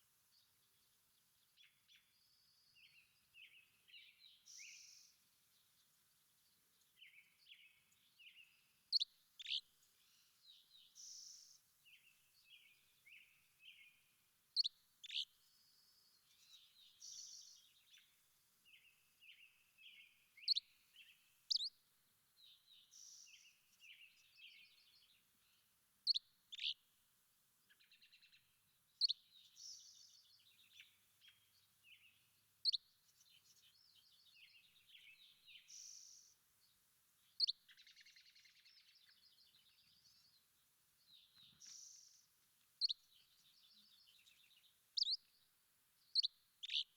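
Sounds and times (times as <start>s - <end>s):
birds chirping and trilling: 2.8s - 5.1s, 7.0s - 14.0s, 14.6s - 15.6s, 16.2s - 21.7s, 22.4s - 26.8s, 41.1s - 45.4s, 46.0s - 46.9s.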